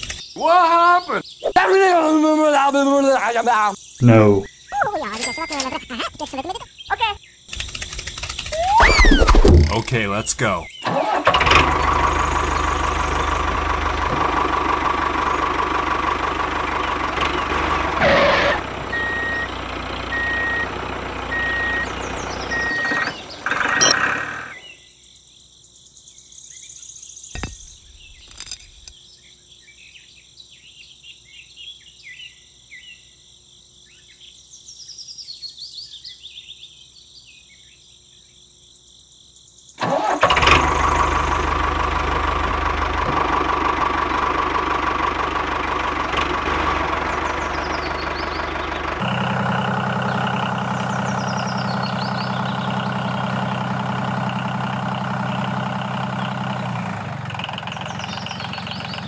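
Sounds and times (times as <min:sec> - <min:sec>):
tractor engine idling: 0:08.2 - 0:24.6, 0:39.8 - 0:59.0.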